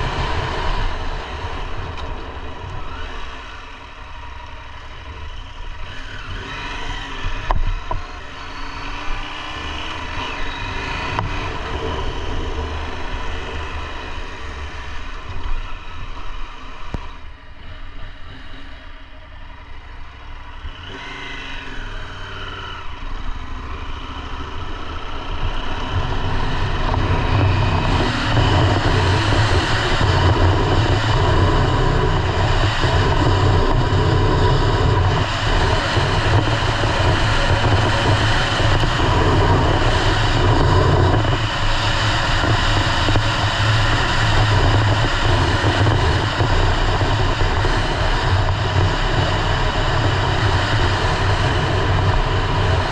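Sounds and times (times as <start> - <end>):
motorcycle engine accelerating: 0.0 - 52.9
road noise: 0.0 - 52.9
wind noise: 25.4 - 52.9.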